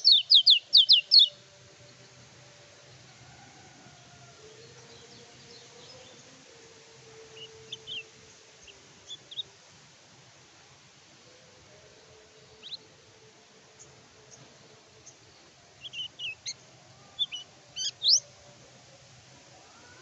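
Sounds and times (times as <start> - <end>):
bird high chirps: 0.0 - 1.4, 15.8 - 16.6, 17.2 - 18.3
faint steady hiss: 0.0 - 20.0.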